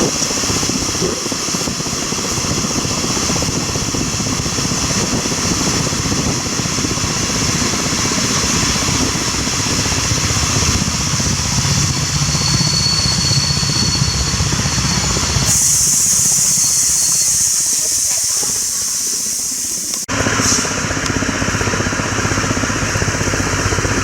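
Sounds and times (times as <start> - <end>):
steam train rumbling: 0.0 - 22.9
steam hissing: 6.7 - 20.9
thin high squeal: 12.0 - 20.7.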